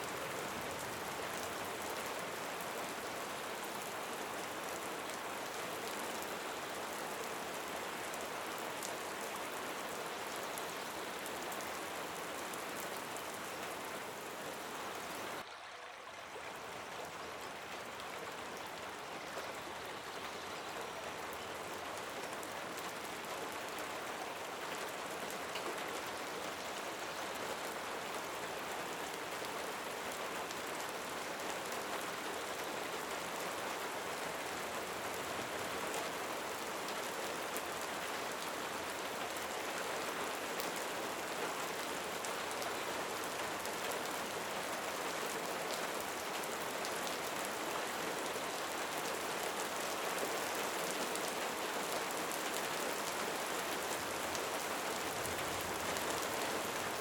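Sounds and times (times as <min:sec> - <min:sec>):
steady rain falling: 0:00.0 - 0:15.5, 0:16.3 - 0:57.0.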